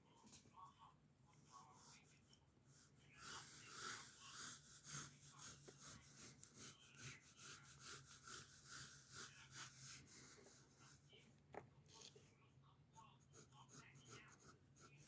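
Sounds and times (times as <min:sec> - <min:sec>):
pencil scratching on paper: 0:01.5 - 0:11.0, 0:13.0 - 0:15.0.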